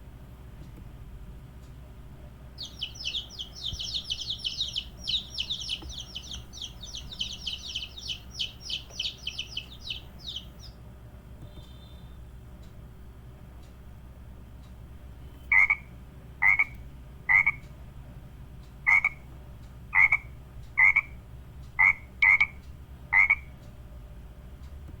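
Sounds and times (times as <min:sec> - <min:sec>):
frog croaking: 0:02.6 - 0:10.7, 0:15.5 - 0:17.6, 0:18.9 - 0:19.2, 0:19.9 - 0:21.2, 0:21.8 - 0:23.5.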